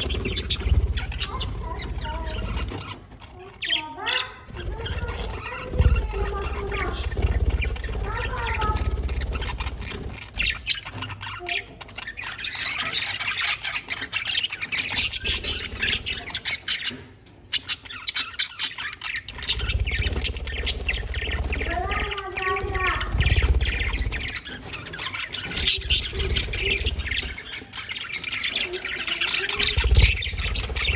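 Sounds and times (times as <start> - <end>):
budgies chattering and squawking: 0.0 - 30.9.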